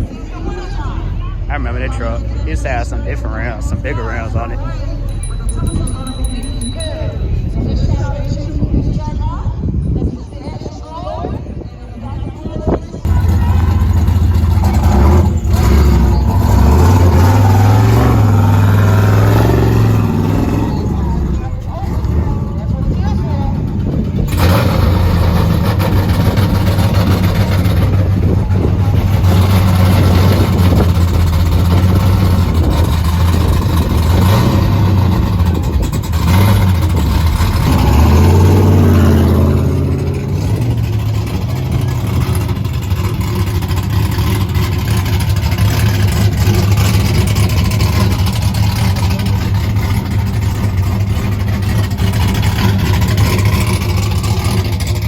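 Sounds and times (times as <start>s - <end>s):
engine running and revving: 13.0s - 55.0s.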